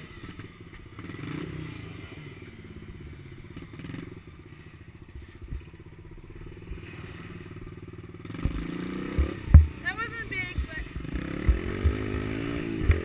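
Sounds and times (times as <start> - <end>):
small motorbike engine running: 0.0 - 13.0
low knock: 9.2 - 9.8.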